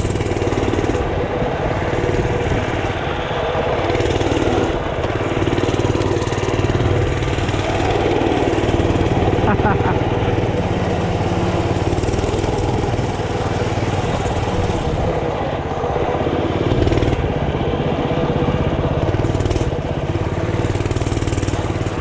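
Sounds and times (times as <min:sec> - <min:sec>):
small bike engine running: 0:00.0 - 0:22.0.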